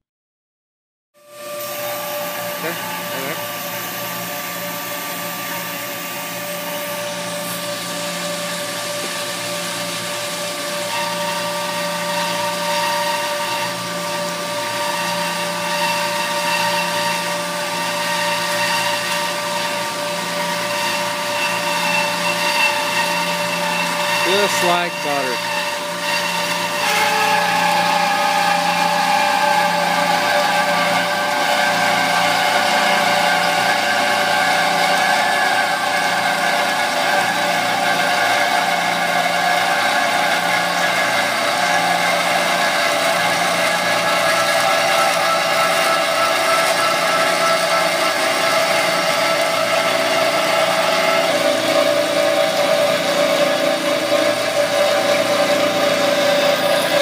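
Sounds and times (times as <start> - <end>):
band saw cutting pipe: 1.3 - 57.0.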